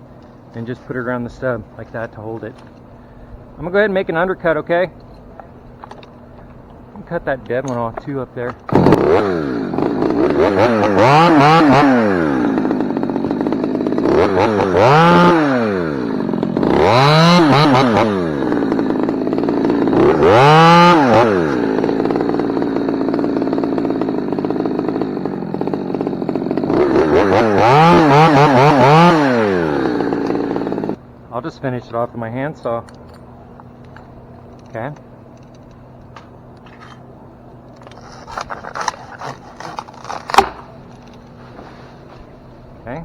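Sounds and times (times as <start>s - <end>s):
chainsaw revving and idling: 6.8s - 31.0s, 37.7s - 43.0s.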